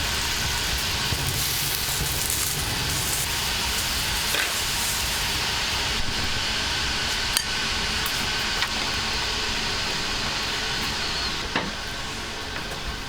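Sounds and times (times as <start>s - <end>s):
food sizzling in a pan: 0.0s - 7.3s.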